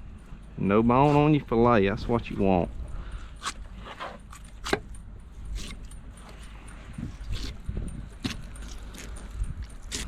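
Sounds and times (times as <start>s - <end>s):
low steady rumble: 0.0s - 10.0s
knife scraping fish bones: 5.5s - 5.9s, 8.2s - 10.0s.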